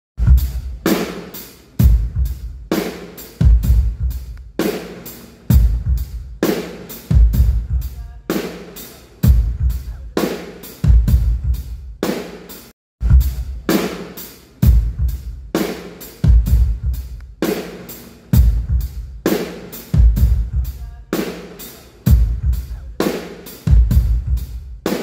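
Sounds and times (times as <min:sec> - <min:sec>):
drum kit slow steady beat: 0:00.2 - 0:25.0.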